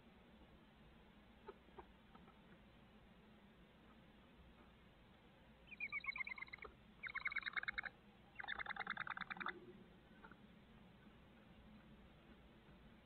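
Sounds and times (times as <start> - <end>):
rapid chattering bird calls: 5.7 - 10.4.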